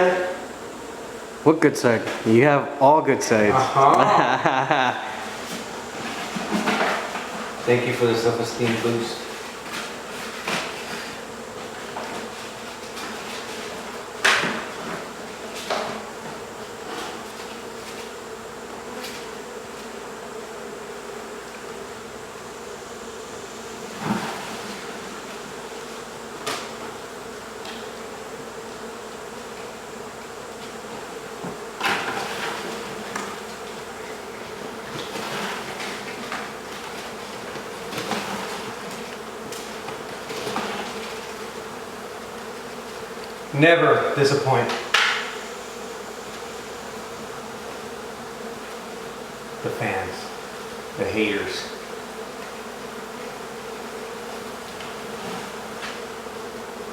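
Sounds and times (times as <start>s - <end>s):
bees buzzing: 0.0s - 56.9s
sharp knocks on hive: 5.6s - 7.6s, 8.5s - 17.6s, 26.2s - 28.0s, 30.6s - 33.9s, 44.6s - 49.3s.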